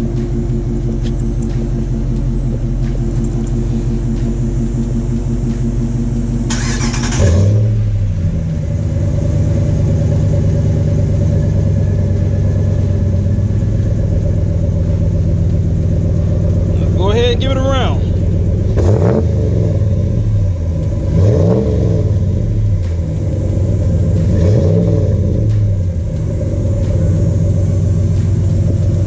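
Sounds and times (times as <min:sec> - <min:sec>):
engine starter cranking: 0:00.0 - 0:09.1
car engine idling: 0:00.0 - 0:29.0
engine firing with rev flare: 0:00.0 - 0:29.0.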